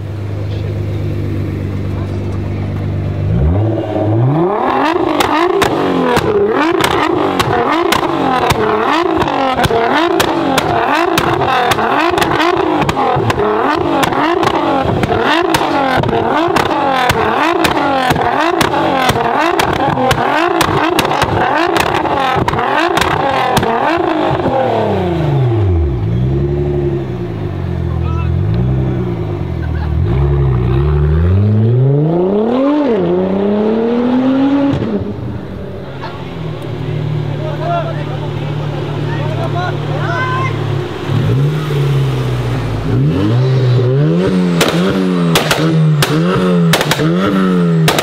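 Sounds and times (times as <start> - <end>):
car engine revving: 0.0 - 48.0
exhaust crackles and pops: 4.7 - 24.8, 34.6 - 40.4, 44.1 - 48.0.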